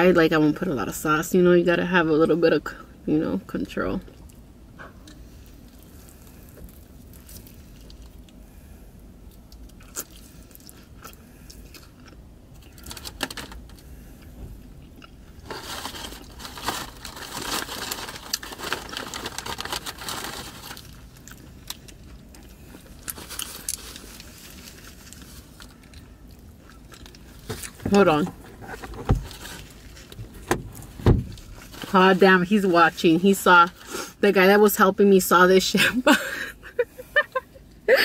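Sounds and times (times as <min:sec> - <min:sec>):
crunchy biting and chewing: 0:09.3 - 0:13.1.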